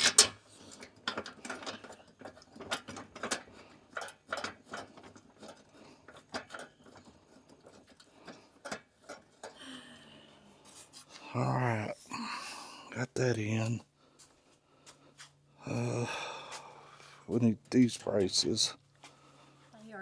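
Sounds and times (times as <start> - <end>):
hand tools clicking and knocking: 0.0 - 9.6.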